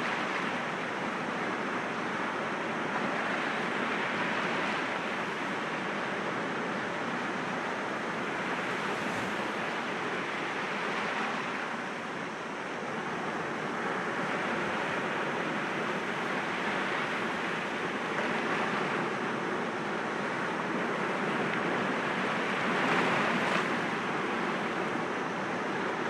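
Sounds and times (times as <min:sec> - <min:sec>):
sea waves breaking against rocks: 0:08.1 - 0:11.7.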